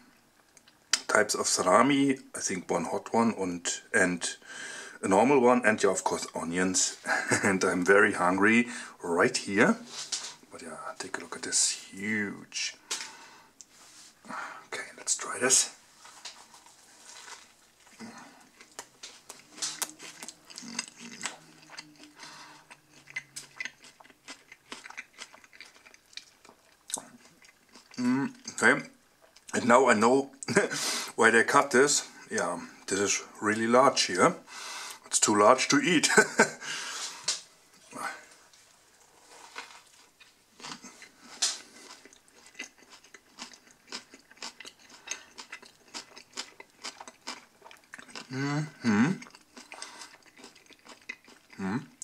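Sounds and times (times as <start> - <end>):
chewing sandwich: 15.9 - 29.6, 36.2 - 52.0.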